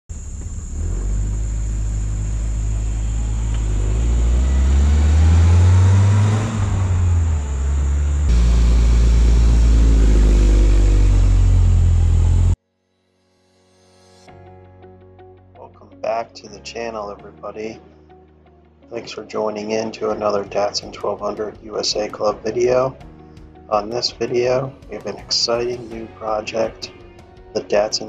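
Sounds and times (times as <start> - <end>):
car driving past: 0.1 - 12.6
steady engine note: 0.1 - 12.6.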